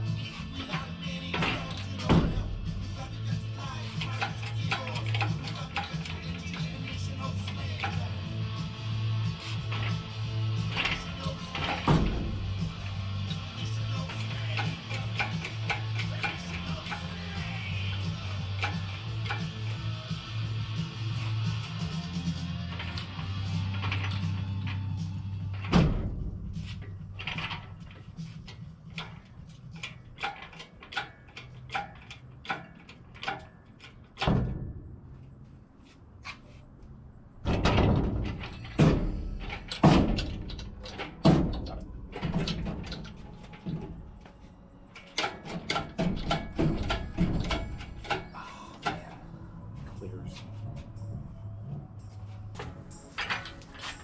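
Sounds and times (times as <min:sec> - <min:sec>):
low steady rumble: 0:00.0 - 0:30.2
background music: 0:00.0 - 0:34.7, 0:37.2 - 0:54.0
sharp knocks and clanks: 0:00.0 - 0:35.4, 0:37.4 - 0:54.0.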